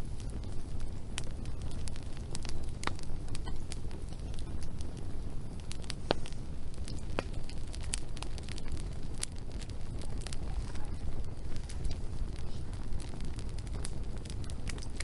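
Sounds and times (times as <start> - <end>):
steady low rumble: 0.0 - 15.0
wood fire crackling and popping: 0.0 - 15.0.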